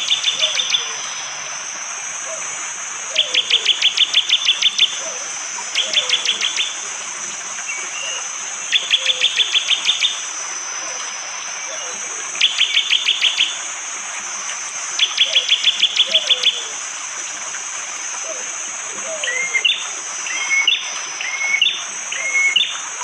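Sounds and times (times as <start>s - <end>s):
high insect drone: 0.0s - 23.0s.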